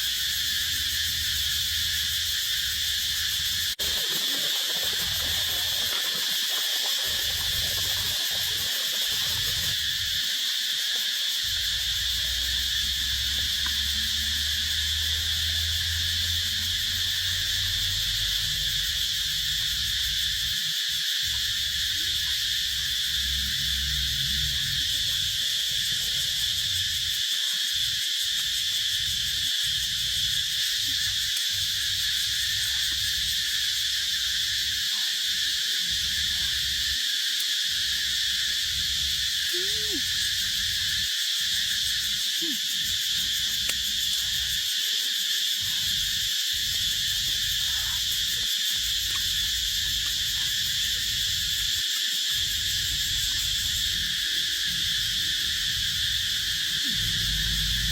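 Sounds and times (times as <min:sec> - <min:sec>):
insects buzzing: 0:00.0 - 0:57.9
low rumble: 0:56.9 - 0:57.9.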